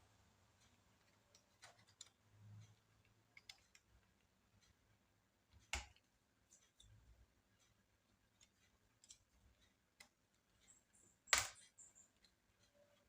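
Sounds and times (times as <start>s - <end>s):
small clicks of tools and parts: 0.6s - 4.8s, 7.6s - 13.0s.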